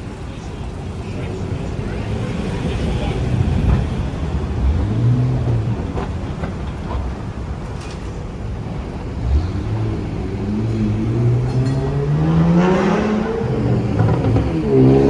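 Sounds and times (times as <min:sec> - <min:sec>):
tram motor hum: 0:00.0 - 0:15.0
tram wheels rumbling on rail: 0:00.0 - 0:15.0.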